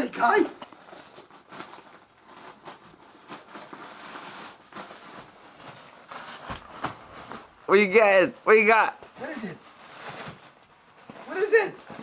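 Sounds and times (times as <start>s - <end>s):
tissue paper rustling and crinkling: 0.0s - 12.0s.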